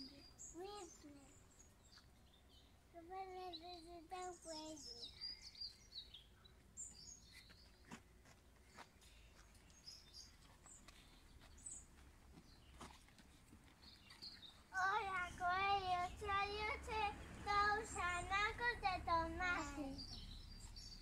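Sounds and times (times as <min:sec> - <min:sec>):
faint child's voice: 0:00.0 - 0:01.4, 0:02.9 - 0:05.6, 0:14.7 - 0:20.2.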